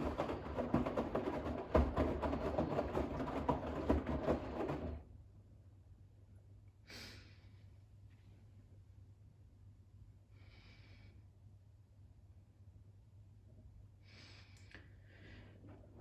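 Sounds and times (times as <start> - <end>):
washing machine drum tumbling: 0.0 - 5.0.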